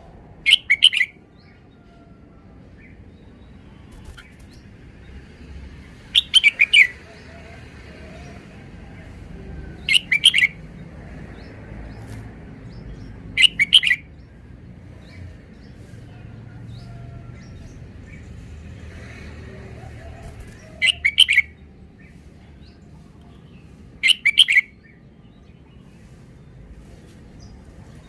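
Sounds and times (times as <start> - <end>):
bulbul singing: 0.4 - 1.6, 5.8 - 7.4, 9.7 - 14.4, 20.0 - 25.8.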